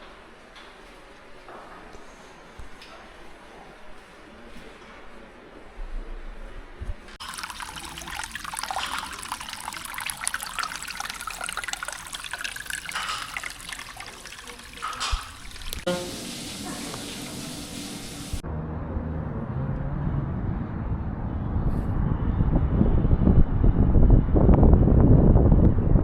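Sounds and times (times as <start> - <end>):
water running and splashing: 7.2 - 18.4.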